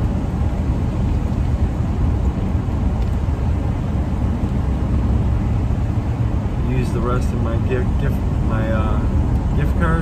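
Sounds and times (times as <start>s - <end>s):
vehicle road and engine rumble: 0.0s - 10.0s.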